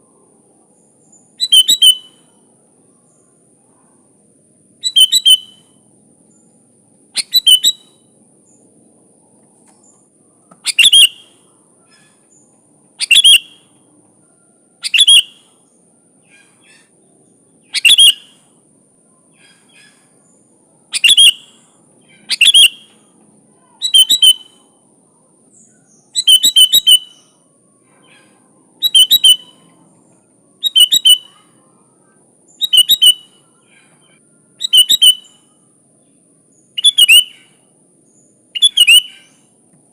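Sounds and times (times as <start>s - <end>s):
bulbul chirping: 1.4s - 2.3s, 4.8s - 5.7s, 7.2s - 8.0s, 10.6s - 11.5s, 13.0s - 13.7s, 14.8s - 15.5s, 17.7s - 18.3s, 21.0s - 23.0s, 23.9s - 24.5s, 25.9s - 27.3s, 28.0s - 29.6s, 30.6s - 31.4s, 32.6s - 33.4s, 34.6s - 35.4s, 36.8s - 37.6s, 38.6s - 39.4s.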